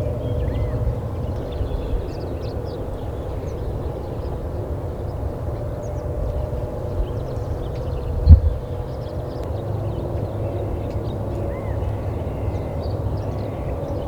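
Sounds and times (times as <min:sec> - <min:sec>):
faint songbird chirps: 0:00.0 - 0:04.4
wind rumbling on microphone: 0:00.0 - 0:14.0.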